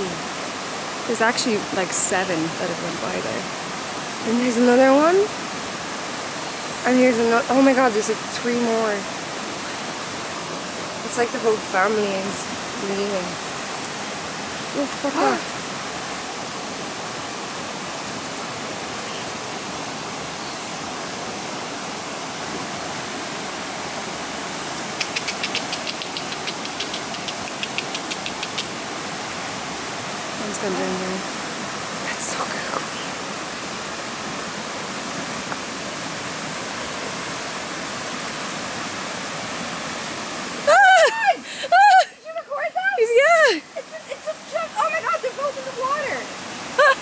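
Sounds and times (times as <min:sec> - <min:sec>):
rushing river water: 0:00.0 - 0:47.0.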